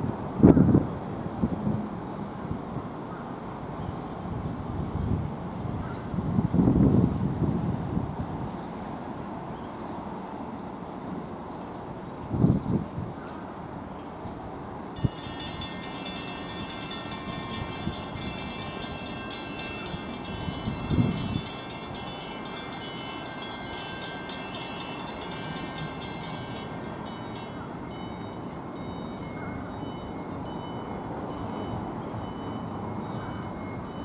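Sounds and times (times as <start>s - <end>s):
rapid high ringing: 15.0s - 34.0s.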